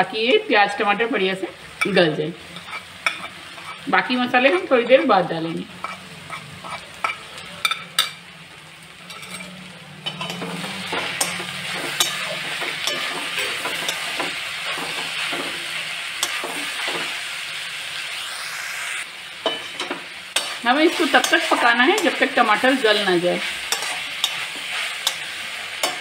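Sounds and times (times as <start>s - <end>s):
onions sizzling in pan: 0.0s - 26.0s.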